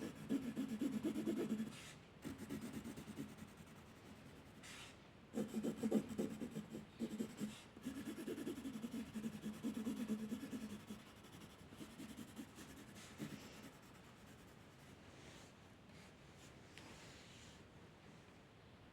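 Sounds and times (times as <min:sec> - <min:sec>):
drawing tool rubbing on paper: 0:00.0 - 0:04.8, 0:05.4 - 0:15.0.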